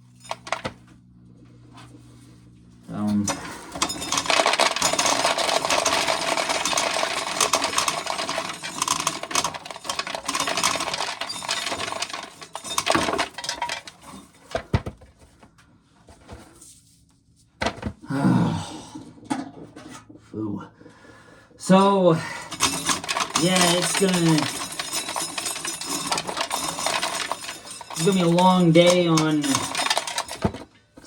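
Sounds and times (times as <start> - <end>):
scattered clicks and knocks: 0.3 - 0.8, 3.8 - 15.0, 22.5 - 30.7
corn kernels clattering into container: 3.3 - 14.7, 22.5 - 30.7.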